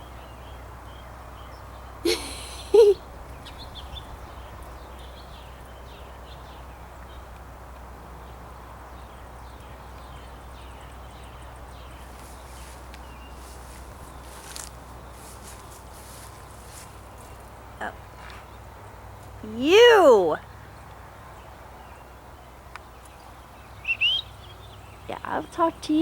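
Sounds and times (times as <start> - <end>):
small birds chirping faintly: 0.0 - 26.0
loud pitched bird call: 23.6 - 24.7.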